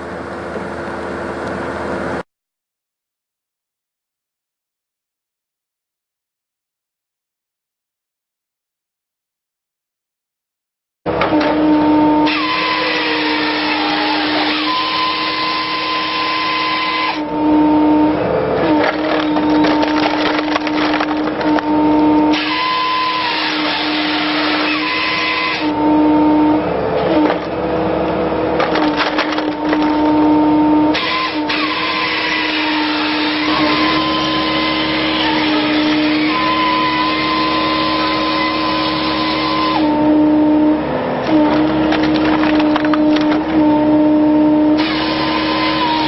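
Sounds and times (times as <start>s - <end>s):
hydraulic whine: 11.1s - 46.0s
wood cracking and splintering: 18.7s - 21.7s, 28.6s - 30.2s, 41.5s - 43.5s.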